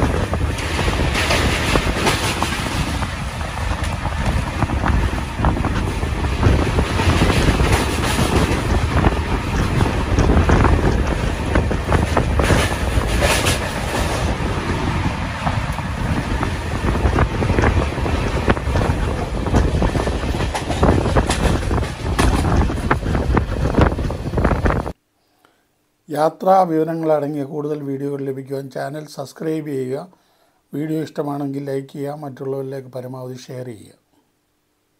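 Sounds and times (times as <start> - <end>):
train rumbling over steel bridge: 0.0 - 25.0
wheel clatter: 0.0 - 25.0
wind on the microphone: 0.0 - 25.0.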